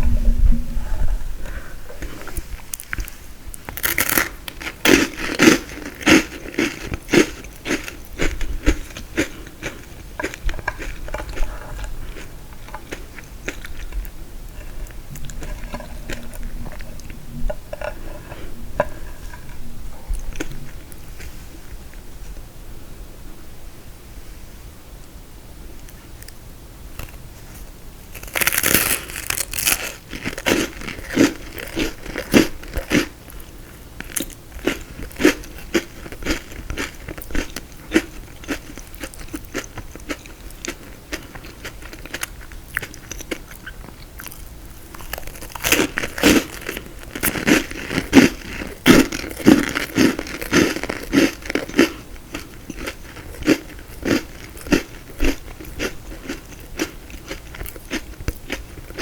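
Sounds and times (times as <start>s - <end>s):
person crunching frozen dessert: 2.7s - 18.4s, 28.1s - 59.0s.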